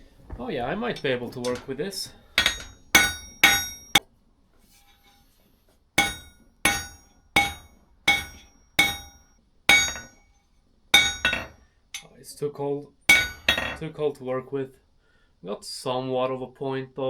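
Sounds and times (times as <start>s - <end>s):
hammer striking steel on anvil: 2.4s - 4.0s, 6.0s - 10.2s, 11.0s - 12.1s, 13.1s - 13.8s.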